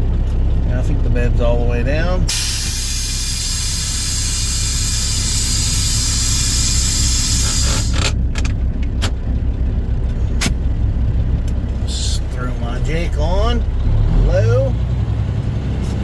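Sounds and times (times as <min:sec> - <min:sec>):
diesel truck engine running: 0:00.0 - 0:16.0
loud hiss of air: 0:02.3 - 0:08.1.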